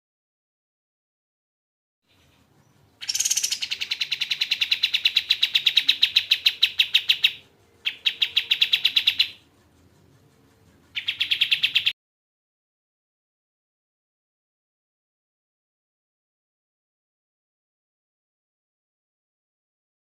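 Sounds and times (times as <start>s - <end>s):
bird singing fast trills: 2.1s - 9.5s, 10.9s - 11.9s.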